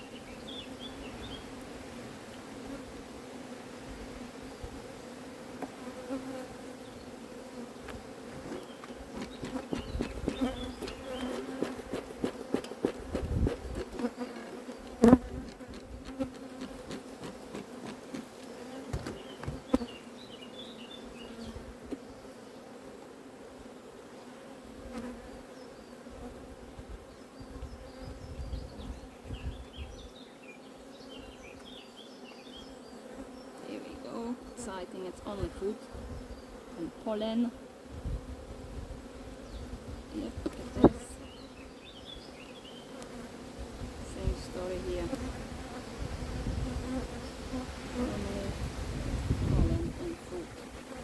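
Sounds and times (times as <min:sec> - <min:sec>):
bees buzzing: 0:00.0 - 0:51.0
hive frames knocking: 0:07.8 - 0:19.9, 0:40.3 - 0:41.0.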